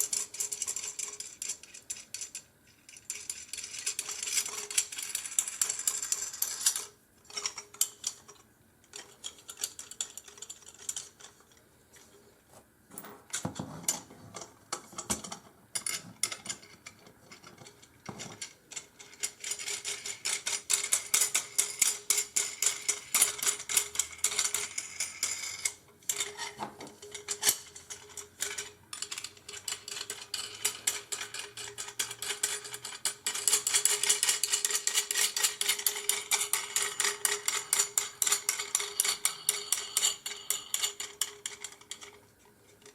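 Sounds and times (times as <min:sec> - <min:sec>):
metallic clicking and ratcheting: 0:14.4 - 0:42.2.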